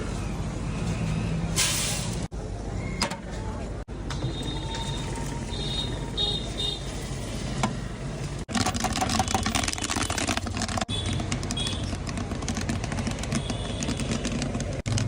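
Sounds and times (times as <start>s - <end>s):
popcorn popping in a pan: 8.5s - 15.0s.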